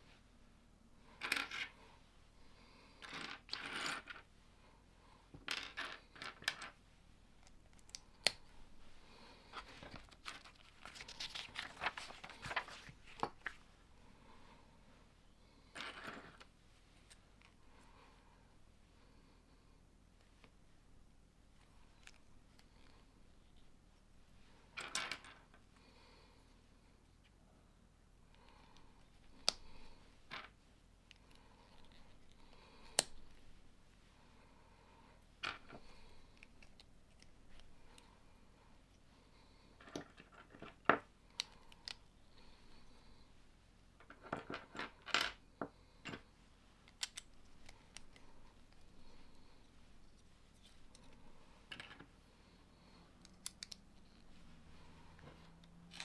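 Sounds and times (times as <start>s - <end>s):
faint rummaging: 7.4s - 13.8s, 44.0s - 52.2s
plastic pieces clicking: 46.9s - 48.8s, 53.2s - 53.8s.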